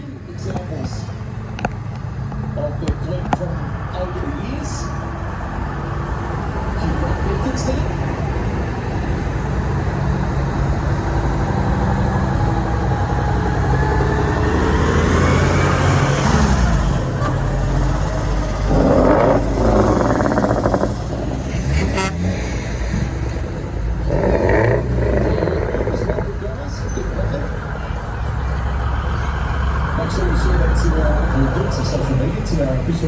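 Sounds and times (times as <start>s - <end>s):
truck engines running: 0.0s - 33.0s
truck horn blast: 21.6s - 22.6s.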